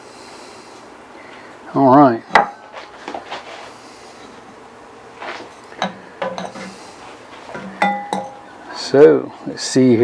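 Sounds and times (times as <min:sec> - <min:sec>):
utensil clinking on pot and dishes: 0:05.4 - 0:06.8, 0:07.5 - 0:08.5.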